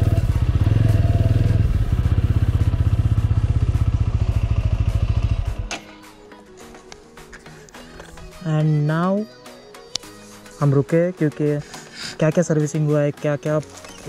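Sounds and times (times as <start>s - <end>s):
motorcycle engine running: 0.0s - 5.7s.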